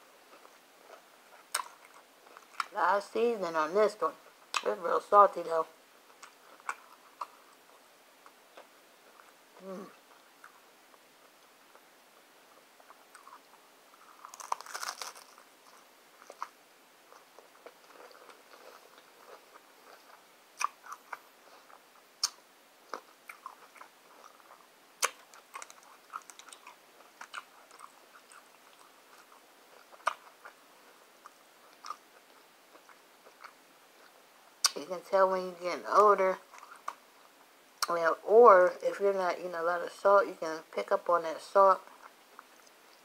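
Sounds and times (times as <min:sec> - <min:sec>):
person crunching a hard taco shell: 0:13.1 - 0:16.6, 0:23.2 - 0:28.9.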